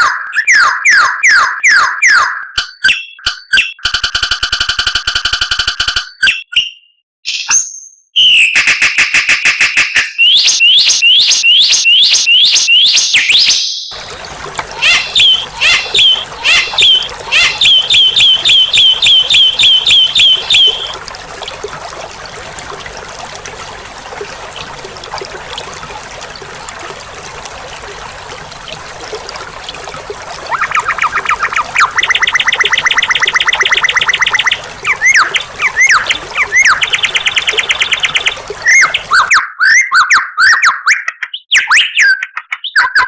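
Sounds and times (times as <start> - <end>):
falling whistled bird notes: 6.2 - 13.9, 14.7 - 21.0, 30.5 - 42.2
songbird chirping: 10.2 - 26.9, 30.2 - 39.3.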